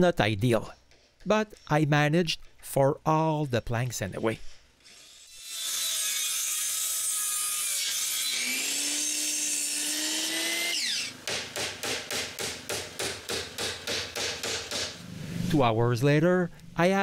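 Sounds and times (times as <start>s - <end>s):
power saw cutting wood: 4.8s - 11.2s
hammer driving nails: 10.7s - 15.0s.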